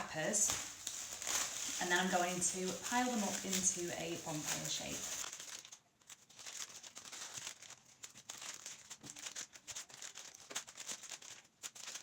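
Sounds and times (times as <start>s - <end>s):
paper cupcake cases crinkling: 0.0s - 12.0s.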